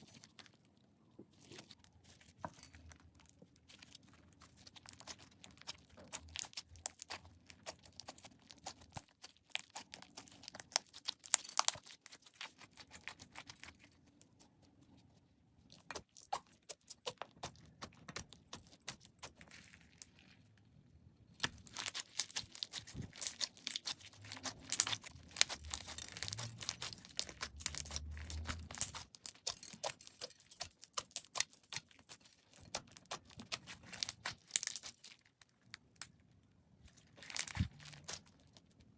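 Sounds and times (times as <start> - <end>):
slime crackling and popping: 1.4 - 14.6, 15.7 - 20.6, 21.3 - 36.3, 36.9 - 38.9.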